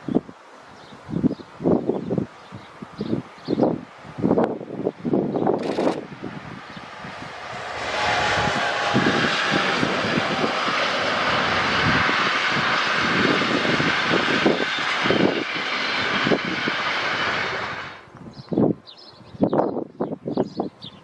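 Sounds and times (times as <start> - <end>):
train wheels on rails: 5.4 - 18.6.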